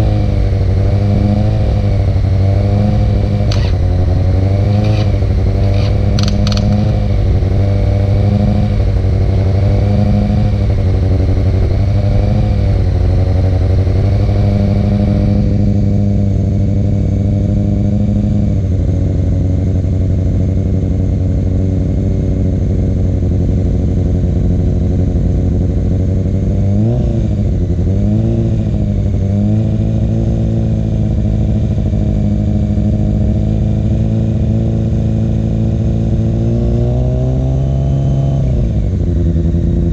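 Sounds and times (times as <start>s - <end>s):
motorcycle engine idling: 1.9s - 8.1s, 18.4s - 26.6s, 38.8s - 39.9s
motorcycle throttle blips: 2.9s - 9.2s.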